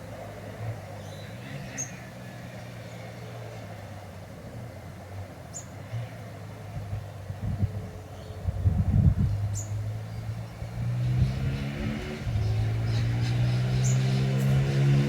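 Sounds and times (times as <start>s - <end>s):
birds chirping: 0.8s - 2.1s, 9.5s - 15.0s.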